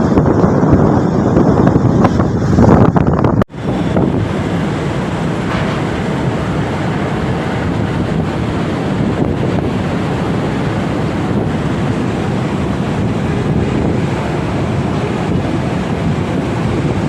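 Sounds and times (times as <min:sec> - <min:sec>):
rushing turbulent water: 0:00.0 - 0:17.0
wind buffeting microphone: 0:00.0 - 0:17.0.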